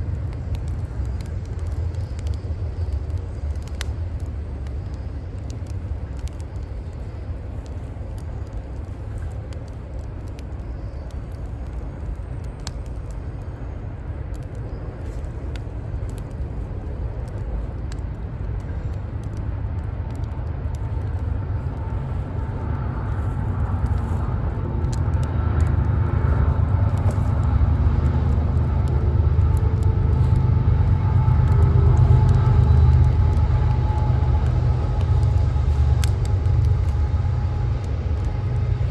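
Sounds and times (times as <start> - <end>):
city traffic rumble: 0.0 - 38.9
motor vehicle engine hum: 0.0 - 38.9
wood fire crackling: 0.0 - 38.9.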